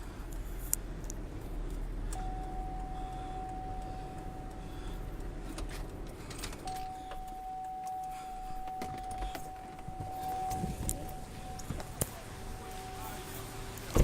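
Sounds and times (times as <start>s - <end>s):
low rumble: 0.0s - 13.7s
high warning beep tone: 2.2s - 4.9s, 6.6s - 13.3s.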